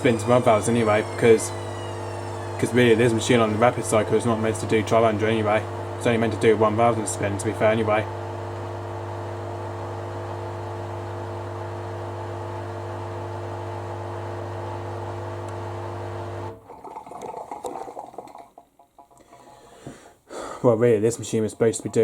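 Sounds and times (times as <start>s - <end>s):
water noise: 0.0s - 6.0s
drain pump humming: 0.0s - 18.4s.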